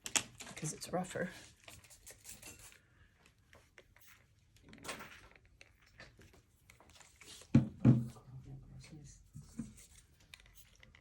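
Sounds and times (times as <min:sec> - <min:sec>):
painting tools scraping and tapping: 0:01.6 - 0:02.9.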